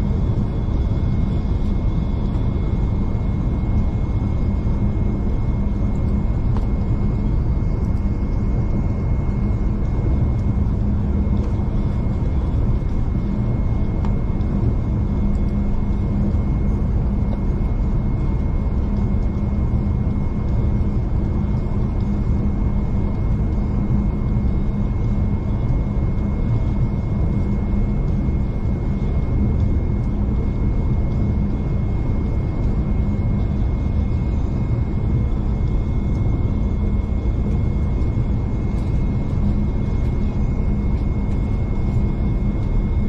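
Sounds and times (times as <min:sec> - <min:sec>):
constant hum: 0:00.0 - 0:43.0.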